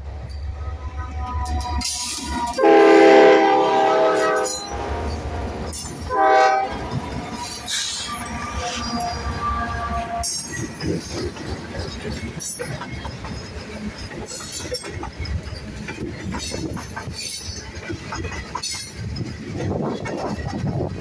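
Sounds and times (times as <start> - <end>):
diesel locomotive passing: 0.0 - 21.0
train wheels rumbling: 0.0 - 21.0
clanks and knocks: 10.2 - 21.0.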